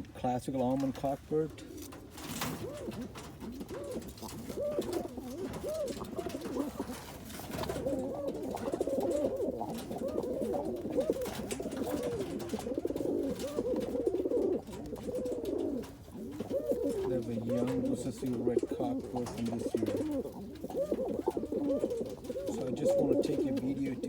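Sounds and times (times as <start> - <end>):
pigeons cooing: 0.7 - 24.0.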